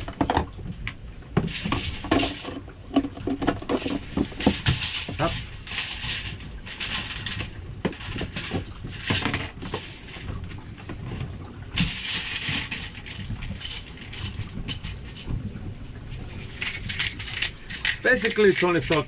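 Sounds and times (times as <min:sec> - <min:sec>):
low rumble of wind: 0:00.0 - 0:19.0.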